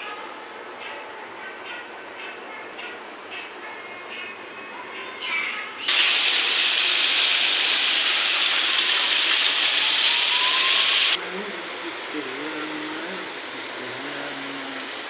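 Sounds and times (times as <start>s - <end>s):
water rushing: 5.9s - 15.0s.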